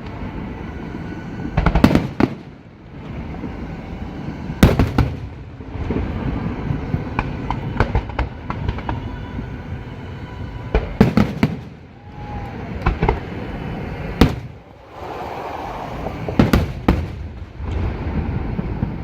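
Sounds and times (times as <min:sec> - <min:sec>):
fireworks bangs: 0:10.7 - 0:19.0
steady low rumble: 0:11.7 - 0:19.0.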